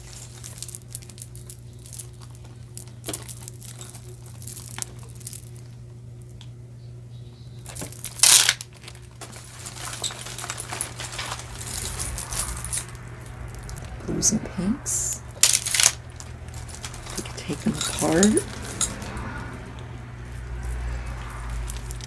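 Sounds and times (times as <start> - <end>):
plastic packaging crinkling: 0.0 - 5.8, 7.6 - 14.0, 15.2 - 22.0
low steady hum: 0.0 - 22.0.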